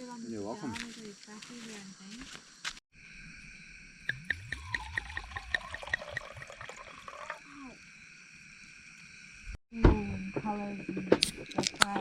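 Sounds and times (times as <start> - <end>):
liquid glugging from bottle: 4.1 - 7.4.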